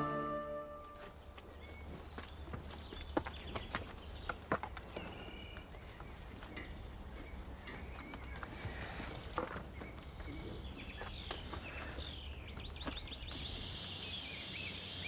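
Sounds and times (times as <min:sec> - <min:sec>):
birds chirping: 0:09.3 - 0:15.0.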